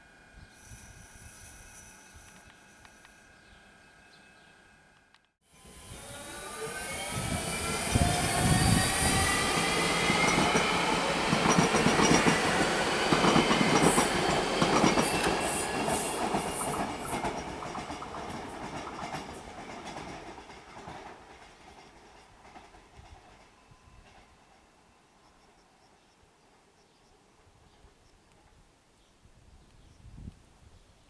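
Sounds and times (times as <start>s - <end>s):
falling whine: 0.0s - 11.3s
train passing rumble: 0.0s - 25.2s
wheels clacking over rail joints: 10.1s - 23.5s.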